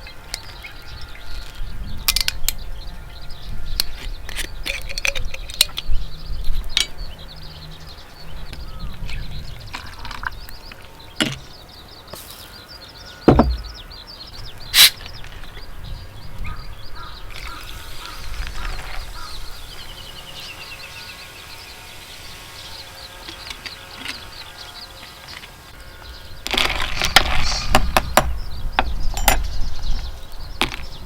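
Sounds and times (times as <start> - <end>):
small birds chirping: 0.0 - 31.0
low thud: 13.3 - 13.9
bird descending trill: 17.5 - 25.1.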